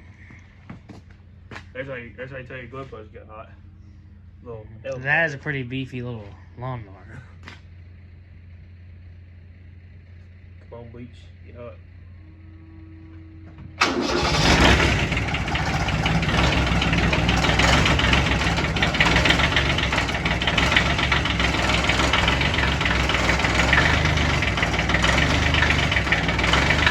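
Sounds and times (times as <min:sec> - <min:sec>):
diesel lawn mower engine clattering: 0:13.4 - 0:26.9.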